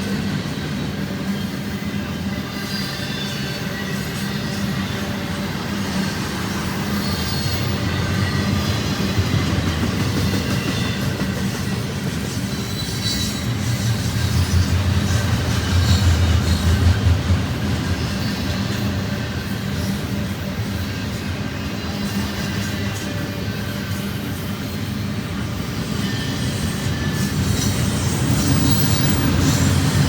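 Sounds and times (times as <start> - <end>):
train wheels rumbling on rail: 0.0 - 30.0
high wheel squeal: 1.2 - 9.1, 10.3 - 16.9, 20.8 - 30.0.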